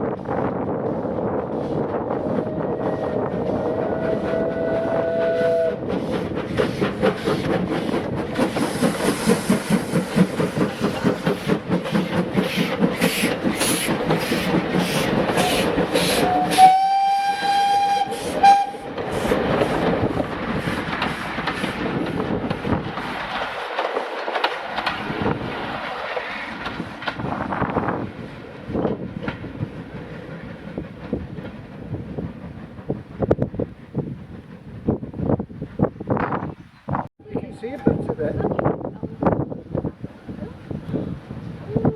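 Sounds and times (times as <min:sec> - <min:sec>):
steam locomotive exhaust beat: 0:00.0 - 0:36.5
steam locomotive whistle: 0:02.2 - 0:05.9, 0:15.4 - 0:19.0.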